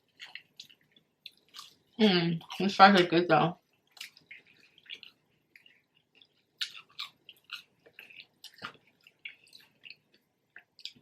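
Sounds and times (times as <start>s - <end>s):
chewing french fries: 0.0s - 11.0s
mouth clicks and crackles: 3.8s - 11.0s.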